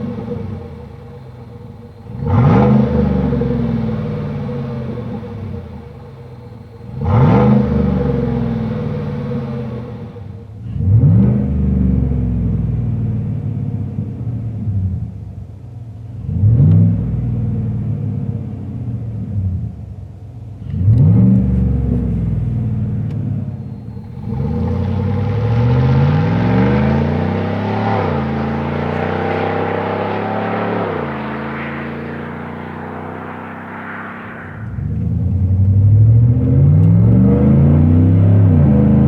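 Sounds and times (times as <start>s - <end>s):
truck engine revving: 1.9s - 12.2s, 23.6s - 39.0s.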